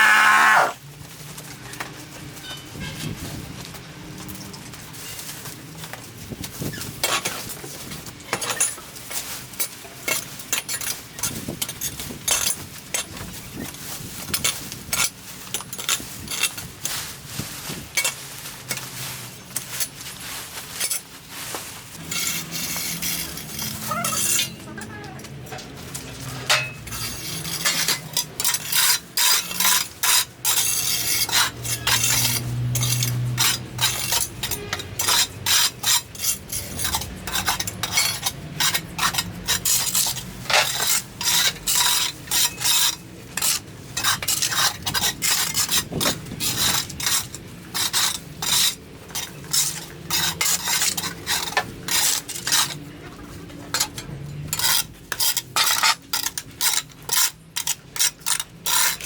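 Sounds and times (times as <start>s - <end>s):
rasping scraping strokes: 22.0s - 24.7s.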